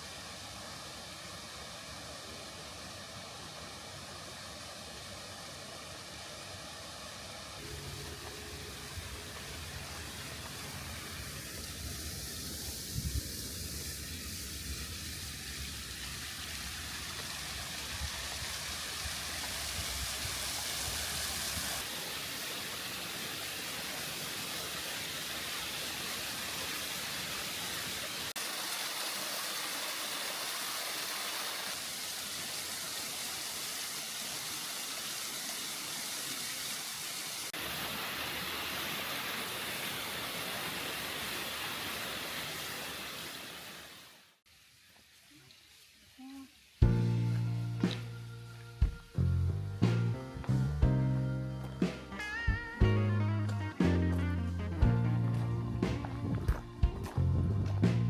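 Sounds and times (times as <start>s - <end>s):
rushing flowing water: 0.0s - 44.4s.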